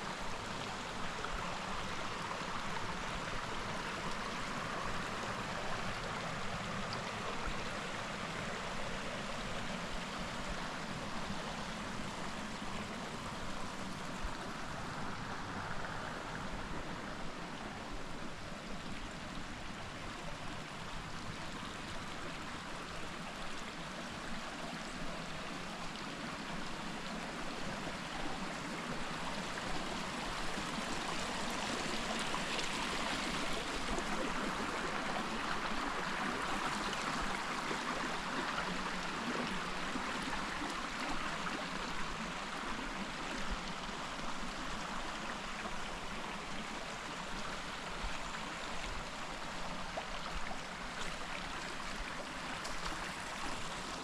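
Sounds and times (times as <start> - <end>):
creek flowing over rocks: 0.0 - 54.0.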